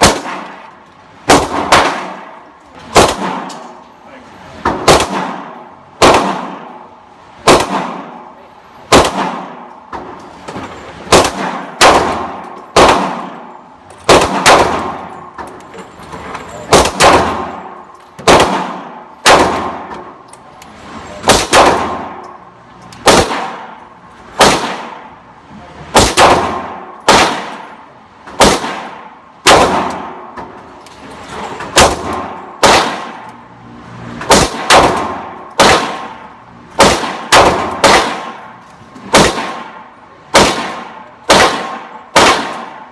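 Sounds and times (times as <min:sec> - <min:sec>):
gunshots with ringing tail: 0:00.0 - 0:03.7, 0:04.7 - 0:09.7, 0:11.1 - 0:15.3, 0:16.7 - 0:20.2, 0:21.2 - 0:22.3, 0:23.0 - 0:23.8, 0:24.4 - 0:25.2, 0:25.9 - 0:30.4, 0:31.7 - 0:33.2, 0:34.2 - 0:42.9.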